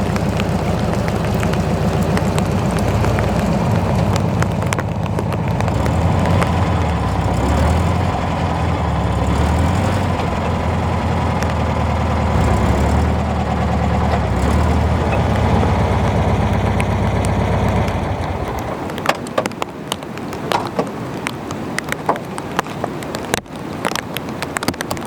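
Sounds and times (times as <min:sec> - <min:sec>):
van engine idling: 0:00.0 - 0:18.9
rain dripping and tapping: 0:00.0 - 0:25.0
steady rain: 0:00.0 - 0:25.0.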